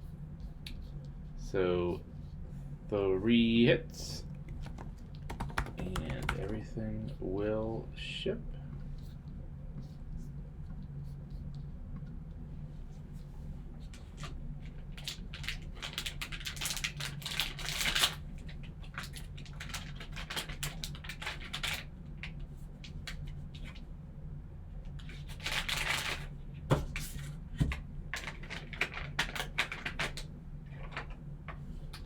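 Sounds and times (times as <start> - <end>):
card packaging crinkling and tearing: 15.0 - 18.2.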